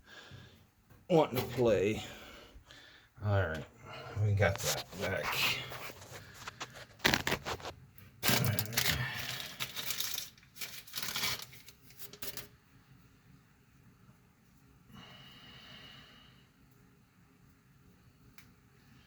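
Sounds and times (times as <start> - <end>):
rustling and crinkling: 4.3 - 12.6.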